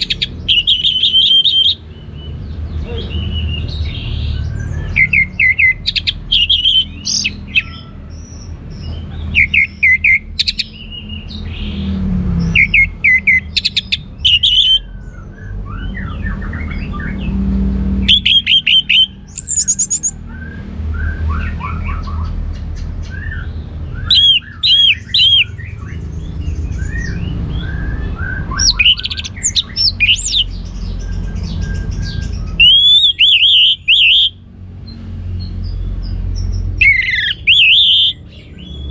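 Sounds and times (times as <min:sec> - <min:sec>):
thrush whistled song: 0:00.0 - 0:02.2, 0:02.8 - 0:07.9, 0:12.5 - 0:17.4, 0:18.0 - 0:22.3, 0:23.0 - 0:34.4, 0:36.8 - 0:38.9
soft bird chirps: 0:00.0 - 0:38.9.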